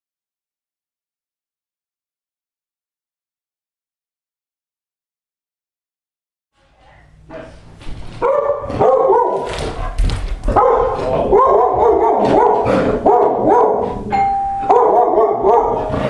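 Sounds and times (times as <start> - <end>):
dog barking loudly: 8.2 - 16.0
doorbell tone: 14.1 - 15.4.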